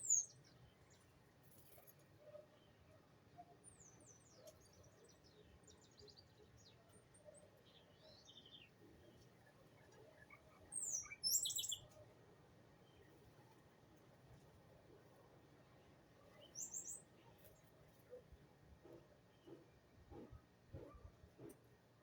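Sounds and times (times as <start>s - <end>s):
small birds chirping: 0.0s - 1.0s, 10.2s - 11.9s, 16.4s - 17.6s.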